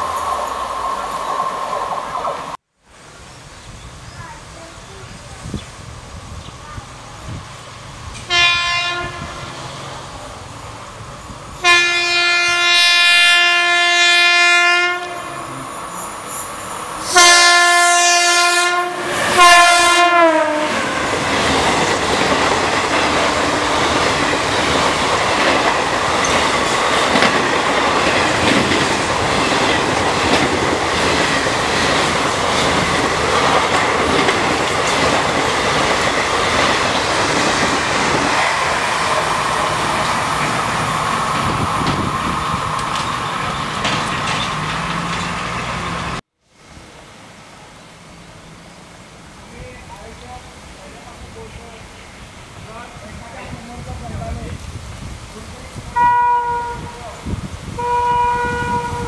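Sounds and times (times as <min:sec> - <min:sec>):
locomotive horn blasts: 0:08.3 - 0:09.7, 0:11.6 - 0:15.6, 0:17.0 - 0:21.0, 0:56.0 - 0:57.0, 0:57.8 - 0:59.0.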